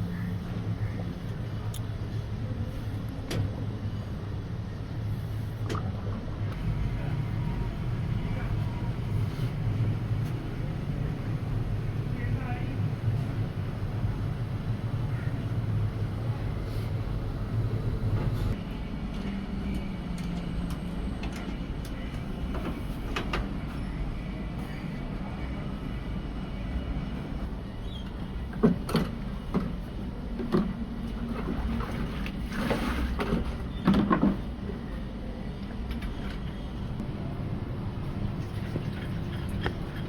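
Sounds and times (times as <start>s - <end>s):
workshop machinery humming: 0.0s - 40.0s.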